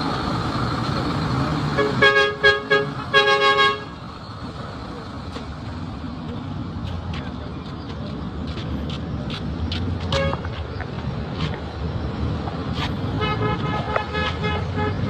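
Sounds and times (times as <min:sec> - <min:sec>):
street traffic noise: 0:00.0 - 0:15.0
vehicle horn honking: 0:01.8 - 0:04.0, 0:10.1 - 0:10.4, 0:13.2 - 0:15.0.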